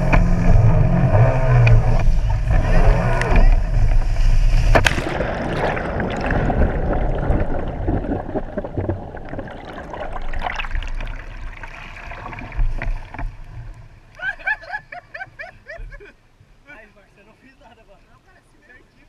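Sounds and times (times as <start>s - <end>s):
low rumble: 0.0s - 14.1s
water sloshing and splashing: 3.8s - 14.1s.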